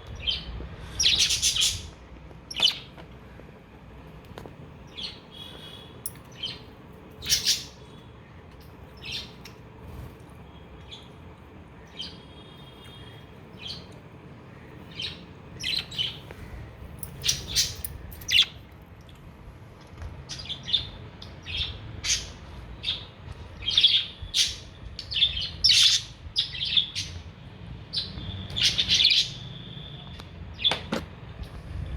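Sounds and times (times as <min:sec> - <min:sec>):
budgerigars chirping: 0:00.2 - 0:02.9, 0:04.9 - 0:07.8, 0:17.2 - 0:18.6.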